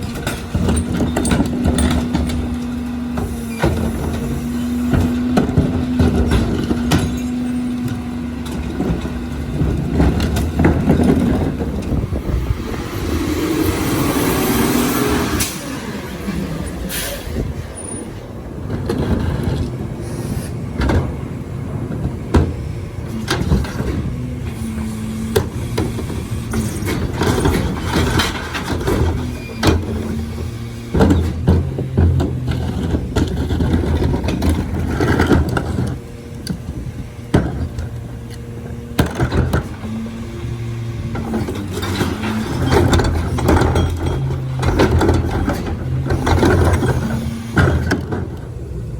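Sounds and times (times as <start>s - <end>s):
hydraulic whine: 0.0s - 48.9s
truck engine running: 0.0s - 48.9s
metallic clanks and knocks: 41.1s - 48.5s.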